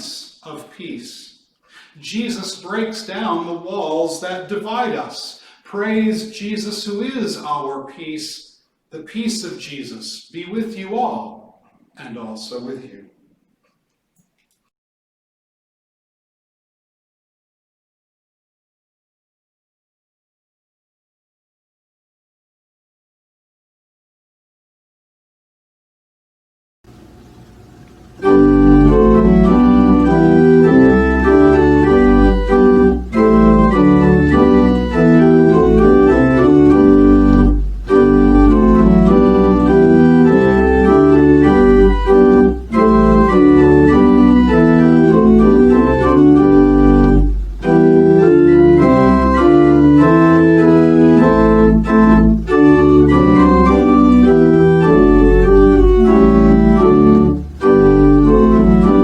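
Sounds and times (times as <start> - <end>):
organ playing held chords: 26.9 - 59.0
deep bass line: 28.3 - 59.0.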